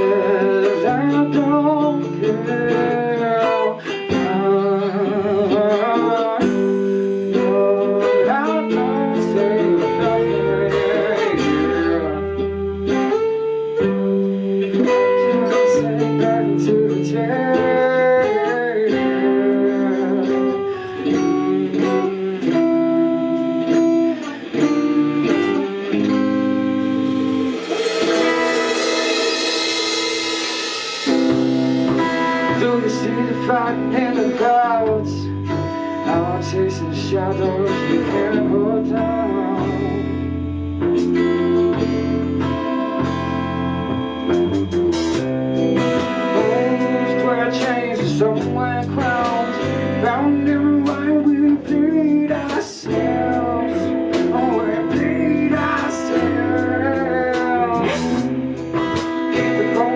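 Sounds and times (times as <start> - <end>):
bending guitar lines: 0.0 - 59.9
live band playing slow song: 0.0 - 59.9
hissing cymbal wash: 26.8 - 32.5.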